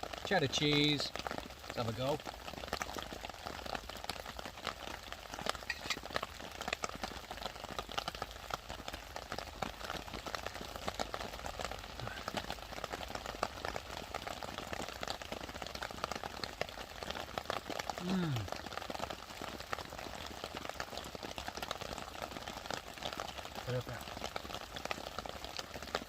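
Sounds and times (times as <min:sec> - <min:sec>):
patties sizzling in a frying pan: 0:00.0 - 0:26.0
rain pattering: 0:00.0 - 0:26.0.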